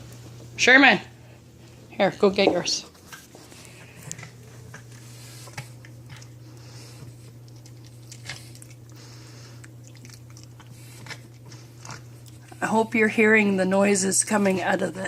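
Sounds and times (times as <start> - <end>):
steady low hum: 0.0 - 15.0
dogs crunching chew treats: 2.6 - 13.2.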